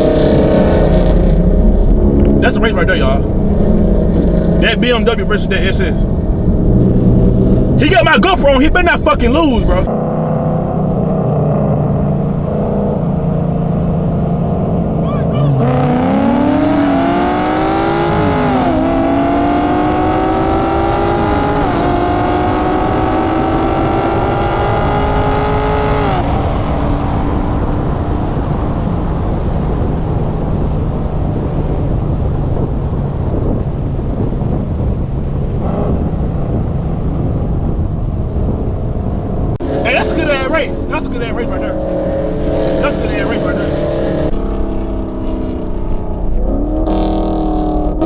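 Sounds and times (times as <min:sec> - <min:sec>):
car engine at full throttle: 0:00.0 - 0:48.0
wind and road noise: 0:00.0 - 0:48.0.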